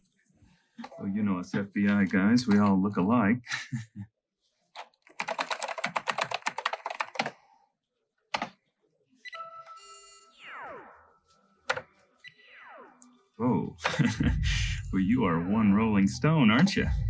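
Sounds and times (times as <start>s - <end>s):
typing on a keyboard: 4.8s - 7.4s, 8.3s - 8.6s
electronic tones with falling sweeps: 9.4s - 11.4s, 12.2s - 15.4s.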